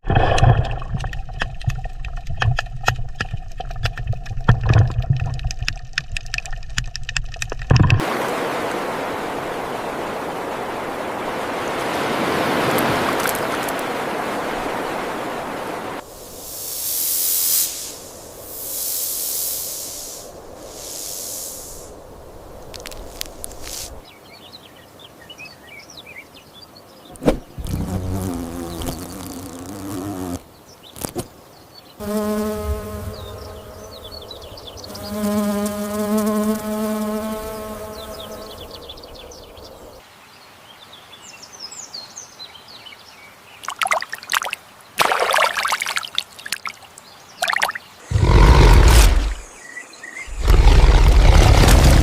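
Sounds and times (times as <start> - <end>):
insect buzz: 15.0 - 24.0, 27.1 - 31.4, 32.0 - 40.0, 47.4 - 52.0.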